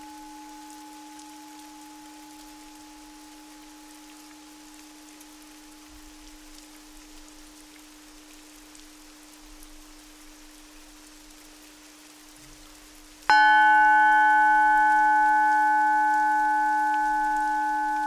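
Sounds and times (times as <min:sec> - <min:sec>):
soft rain pattering: 0:00.0 - 0:18.0
faint high tone: 0:13.4 - 0:18.0.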